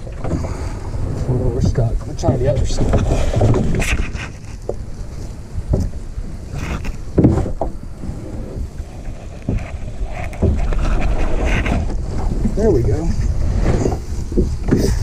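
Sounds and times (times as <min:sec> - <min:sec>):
paddle knocking and scraping: 0:00.0 - 0:15.0
wind on microphone: 0:00.0 - 0:15.0.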